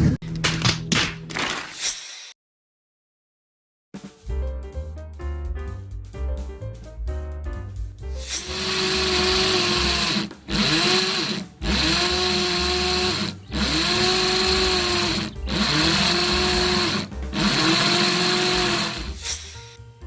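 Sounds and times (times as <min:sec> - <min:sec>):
electric drill motor spinning: 0:08.4 - 0:19.2.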